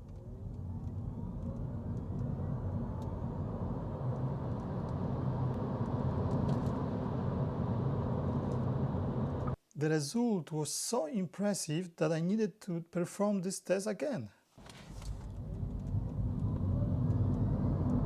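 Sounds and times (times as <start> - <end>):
electric motor whine: 0.0 - 9.6, 15.0 - 18.0
road and wind noise: 0.0 - 9.6, 14.9 - 18.0.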